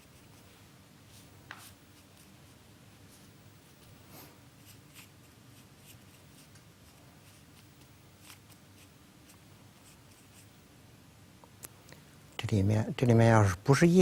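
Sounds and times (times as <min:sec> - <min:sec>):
ink brush strokes on paper: 0:00.0 - 0:10.5
low steady hum: 0:00.0 - 0:14.0.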